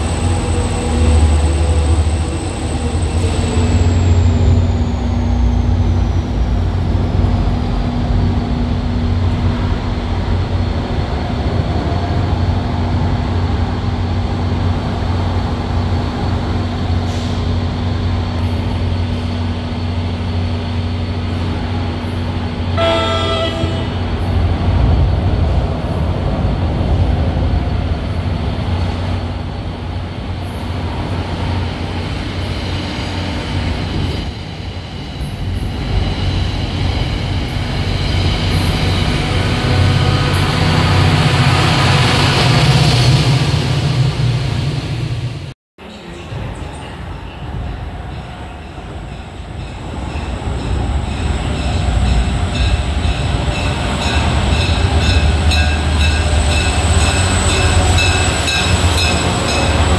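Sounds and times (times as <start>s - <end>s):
train wheel and rail noise: 0.0s - 59.9s
train horn blast: 22.8s - 24.0s.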